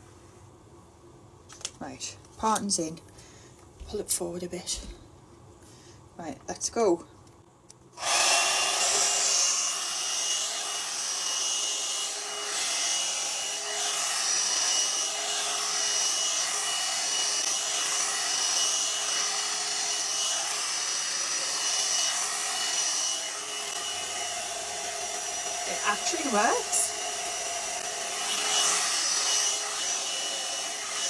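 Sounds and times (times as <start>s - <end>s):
hot air brush blowing: 8.0s - 31.0s.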